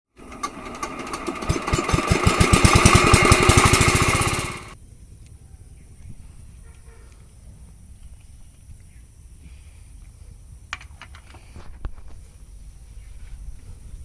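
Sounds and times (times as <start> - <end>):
small diesel engine starting: 0.1 - 4.8.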